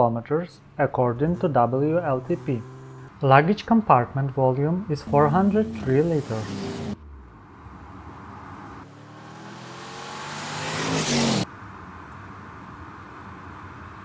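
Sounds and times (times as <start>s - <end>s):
road noise: 0.0s - 14.0s
car engine accelerating: 0.6s - 3.2s, 4.5s - 11.5s.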